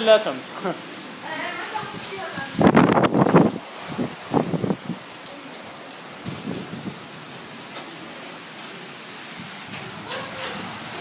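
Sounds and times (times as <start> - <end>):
heavy rain on pavement: 0.0 - 11.0.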